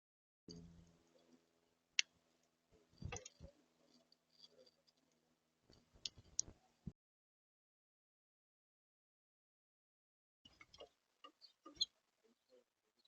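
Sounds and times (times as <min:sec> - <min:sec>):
small birds chirping: 0:10.5 - 0:13.0.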